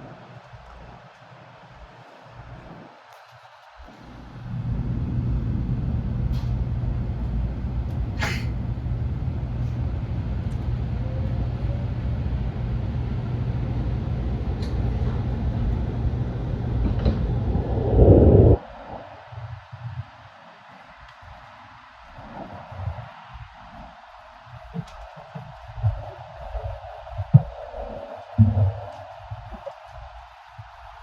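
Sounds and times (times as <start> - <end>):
train cabin rumble and hum: 3.8 - 18.7.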